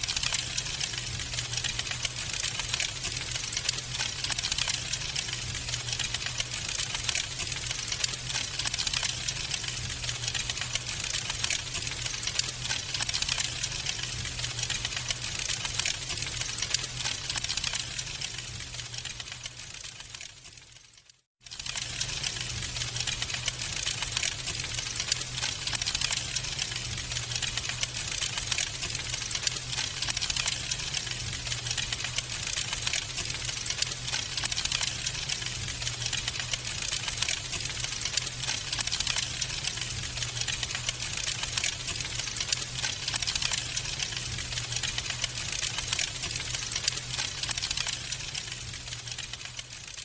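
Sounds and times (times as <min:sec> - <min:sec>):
wood fire crackling: 0:00.0 - 0:50.0
low fire rumble: 0:21.7 - 0:49.2.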